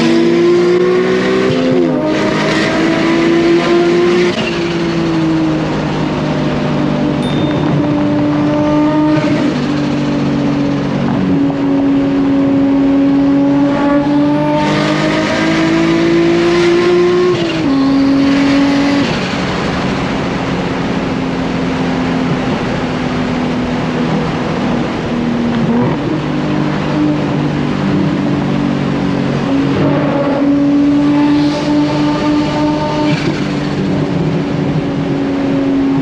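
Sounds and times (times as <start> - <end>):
car engine from inside cabin: 5.2 - 19.0.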